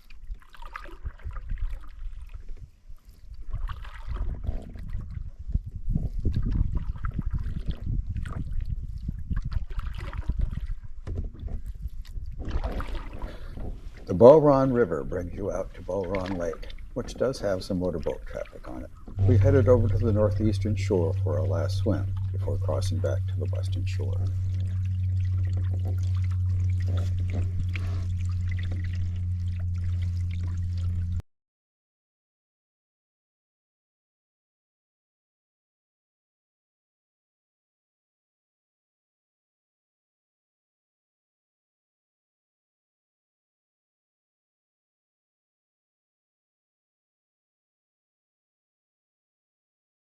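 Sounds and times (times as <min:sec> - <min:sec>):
paddle strokes in water: 0:00.0 - 0:31.2
water splashing and lapping: 0:00.0 - 0:31.2
steady low hum: 0:11.6 - 0:31.2
steady low rumble: 0:13.3 - 0:31.2.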